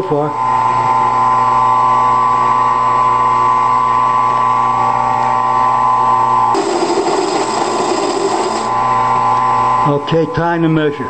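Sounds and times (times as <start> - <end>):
lathe motor whine: 0.3 - 9.8
hissing metal cutting noise: 6.6 - 8.9.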